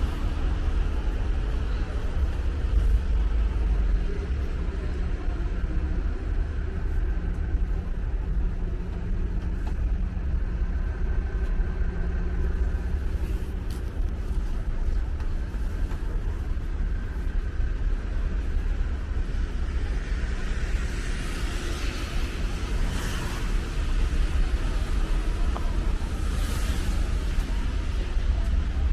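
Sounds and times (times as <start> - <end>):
road traffic engine rumble: 0.0 - 28.9.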